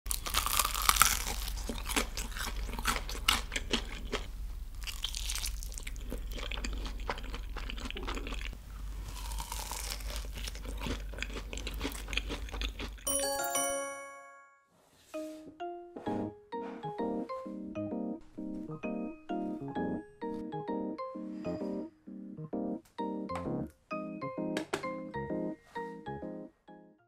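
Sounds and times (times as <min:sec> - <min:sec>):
fried chicken crunching: 0:00.1 - 0:13.1
wet chewing: 0:00.1 - 0:13.1.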